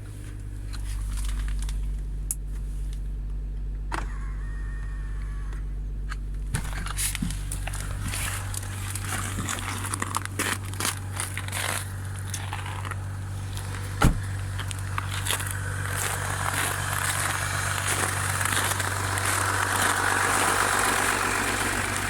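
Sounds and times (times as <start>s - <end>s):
diesel engine idling: 0.0s - 22.0s
crackling and clicking: 7.1s - 22.0s
sharp thump: 14.0s - 14.3s.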